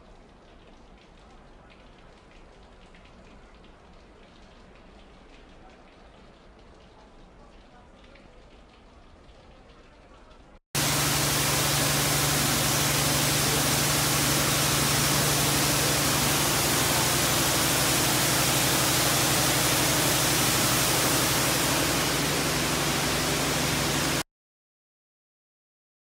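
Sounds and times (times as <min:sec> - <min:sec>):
heavy rain rushing: 0:10.8 - 0:24.2
low steady hum: 0:10.8 - 0:24.2.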